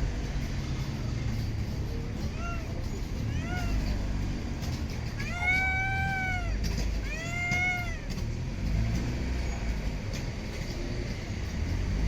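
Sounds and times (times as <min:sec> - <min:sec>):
cat meowing: 0:02.2 - 0:04.0, 0:05.1 - 0:08.2.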